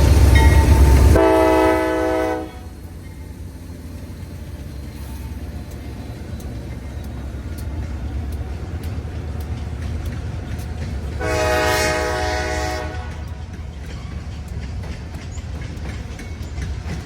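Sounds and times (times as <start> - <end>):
passing train rumbling: 0.0 - 17.0
locomotive horn blast: 1.0 - 2.7, 11.2 - 13.3.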